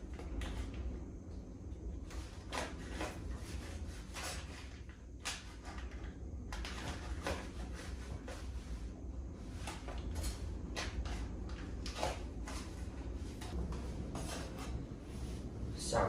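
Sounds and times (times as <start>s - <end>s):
steady low rumble: 5.6s - 16.0s.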